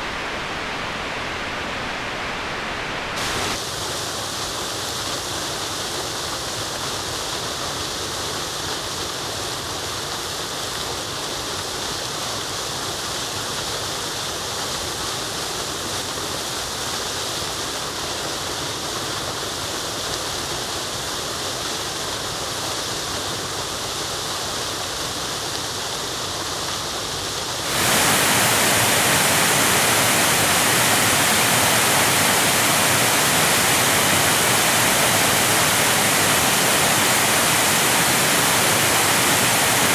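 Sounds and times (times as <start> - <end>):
rushing water: 0.0 - 3.6, 27.6 - 39.9.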